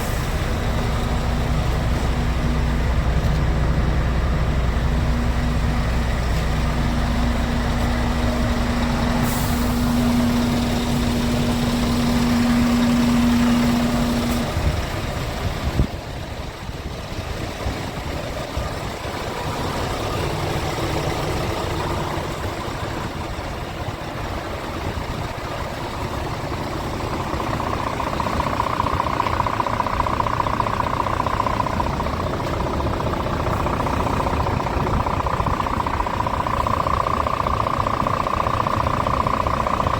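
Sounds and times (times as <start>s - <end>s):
truck diesel engine running: 0.0s - 39.9s
high steady whine: 25.7s - 39.9s.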